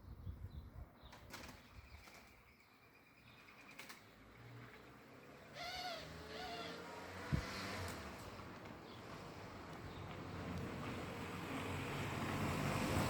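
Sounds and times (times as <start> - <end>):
pigeons flapping wings: 1.2 - 2.4.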